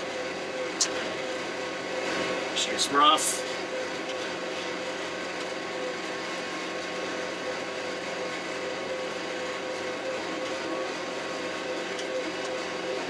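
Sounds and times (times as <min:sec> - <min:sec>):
constant whine: 0:00.0 - 0:08.3
tractor diesel engine running: 0:00.0 - 0:13.0.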